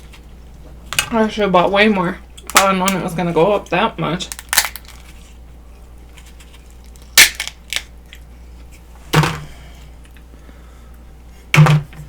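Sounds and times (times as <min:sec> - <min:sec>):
crab shell cracking: 0:04.2 - 0:05.2, 0:06.8 - 0:08.3.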